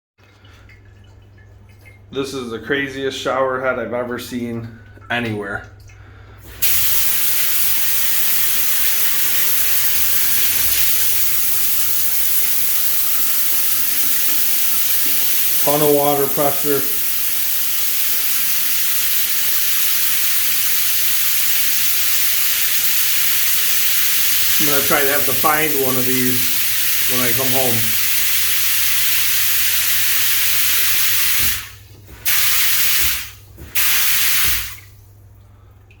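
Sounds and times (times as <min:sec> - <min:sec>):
shower head spraying water: 0:06.4 - 0:35.0.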